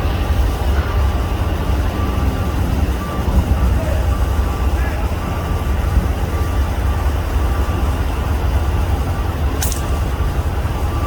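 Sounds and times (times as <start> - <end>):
air rifle shot crack: 9.6 - 10.1.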